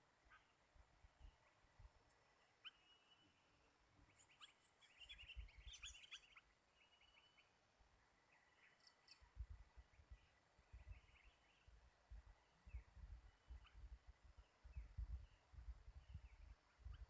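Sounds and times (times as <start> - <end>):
bulbuls chirping: 1.2 - 7.5.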